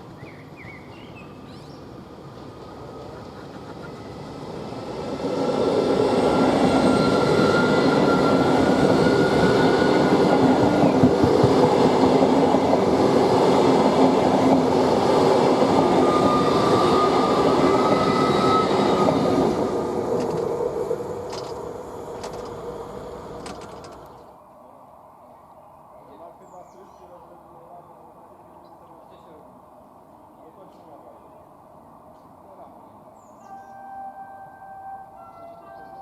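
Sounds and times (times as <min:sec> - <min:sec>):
train rumbling on rails: 0:00.0 - 0:24.3.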